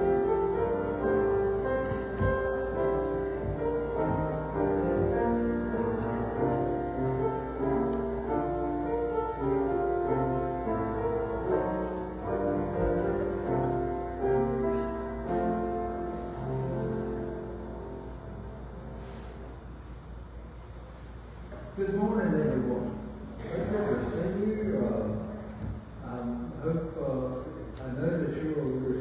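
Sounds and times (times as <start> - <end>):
slow keyboard music: 0.0 - 20.7.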